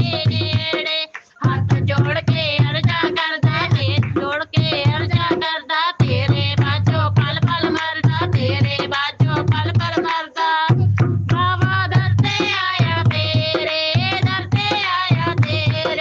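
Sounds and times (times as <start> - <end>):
low percussion: 10.7 - 16.0.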